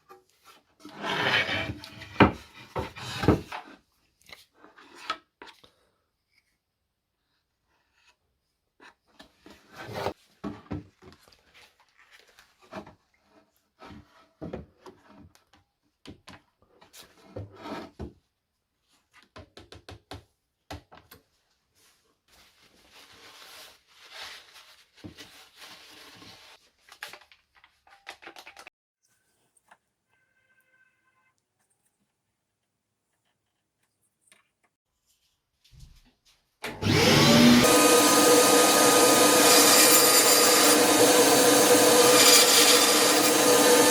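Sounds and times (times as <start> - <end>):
wood scraping: 0.4 - 3.7.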